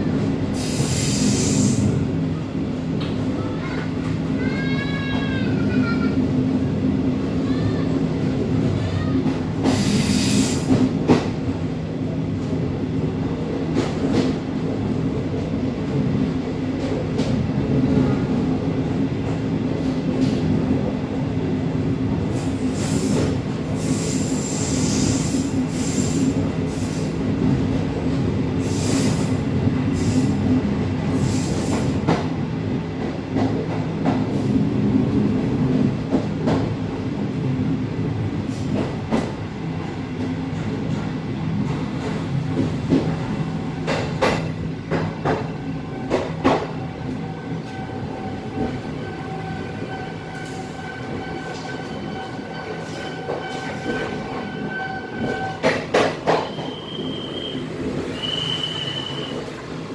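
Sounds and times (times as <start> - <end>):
train rumble and hum: 0.0 - 59.9
train wheels squealing: 47.2 - 59.6.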